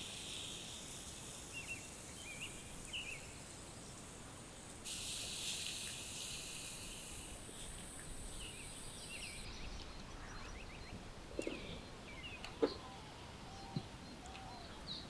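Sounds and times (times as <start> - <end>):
high even hiss: 0.0 - 4.2, 4.8 - 9.5
small birds chirping: 4.9 - 15.0.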